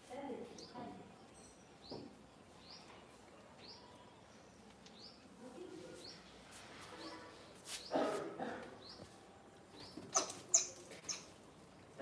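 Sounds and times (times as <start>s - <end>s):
bird chirping: 0.5s - 5.4s, 8.8s - 11.8s.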